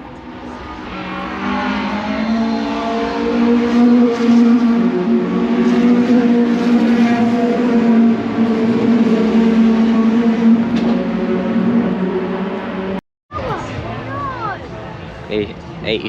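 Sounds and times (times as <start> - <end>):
engine running at high revs: 0.1 - 13.0.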